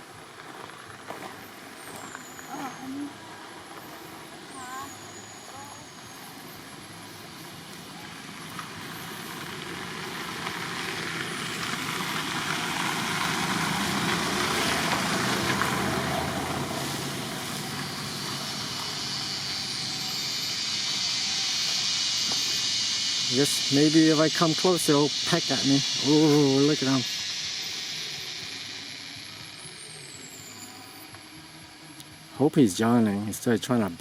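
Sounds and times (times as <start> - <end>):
high-pitched hiss: 0.0 - 34.0
vehicle passing by: 7.0 - 29.6.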